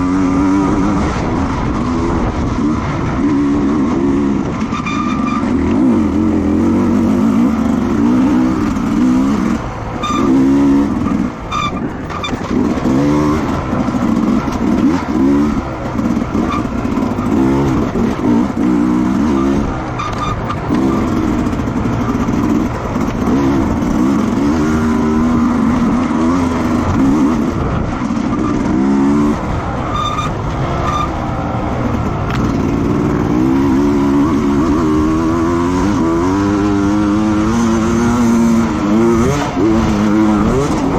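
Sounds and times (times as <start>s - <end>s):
racing motorcycle engines revving: 0.0s - 40.9s.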